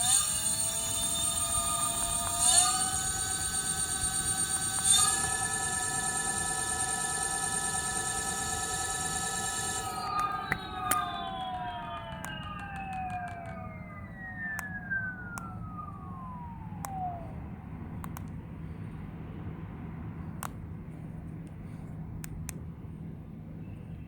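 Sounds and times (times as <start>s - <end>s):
electric motor whining: 0.0s - 17.6s
sharp clicks: 0.2s - 15.8s, 18.0s - 18.4s.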